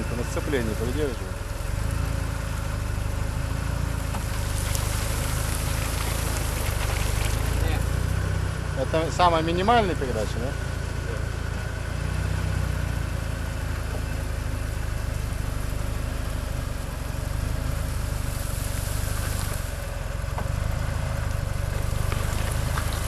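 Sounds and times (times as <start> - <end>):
suv engine running at low revs: 0.0 - 23.0.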